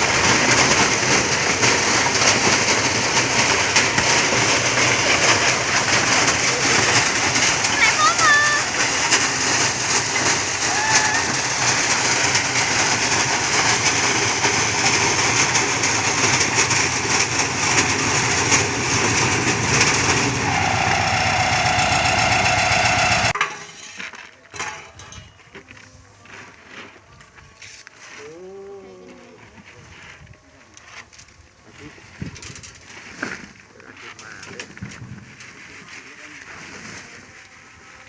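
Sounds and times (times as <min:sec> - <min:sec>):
corn thresher clattering: 0:00.0 - 0:25.3.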